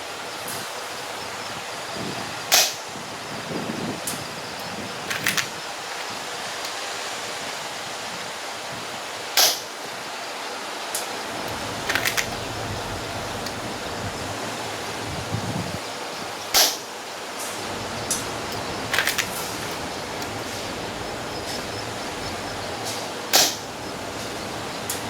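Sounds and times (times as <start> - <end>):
wind noise: 0.0 - 9.2, 11.1 - 16.6, 17.6 - 25.0
light clicks: 11.0 - 14.1, 17.7 - 25.0
airsoft rifle shots: 23.3 - 23.7.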